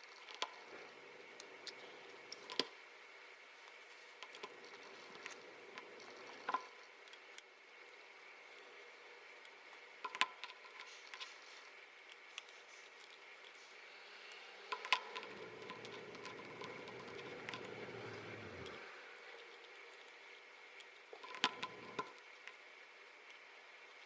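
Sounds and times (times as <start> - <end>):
soft rubbing or scraping: 12.4 - 19.9.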